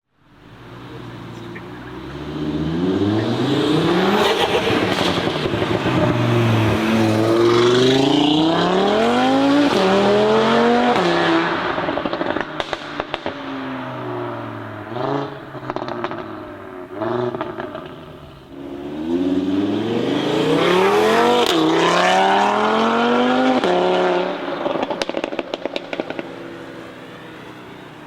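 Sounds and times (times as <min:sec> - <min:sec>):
car engine accelerating: 0:00.5 - 0:28.0
exhaust crackles and pops: 0:11.8 - 0:13.5, 0:15.5 - 0:16.5, 0:17.2 - 0:18.1, 0:24.7 - 0:26.5.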